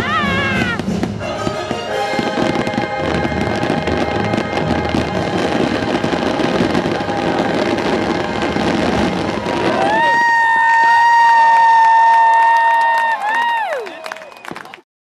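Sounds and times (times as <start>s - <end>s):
orchestral music: 0.0s - 9.9s
fireworks bursting: 0.0s - 12.3s.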